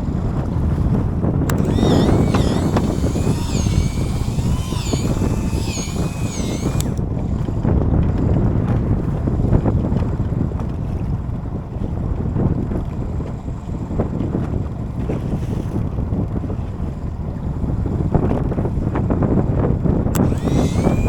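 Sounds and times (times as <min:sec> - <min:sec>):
click: 0:01.5 - 0:07.0, 0:20.1 - 0:21.0.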